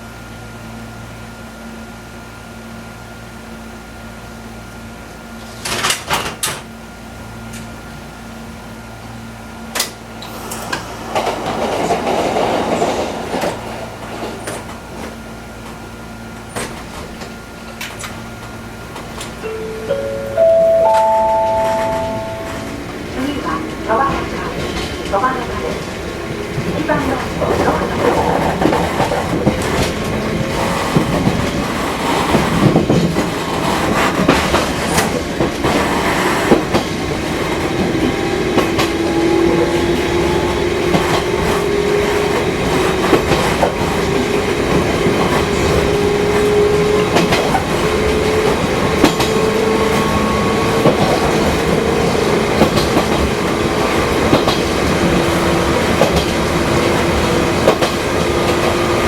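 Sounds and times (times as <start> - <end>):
wheels clicking and knocking on track: 26.5 - 39.1, 40.5 - 59.0.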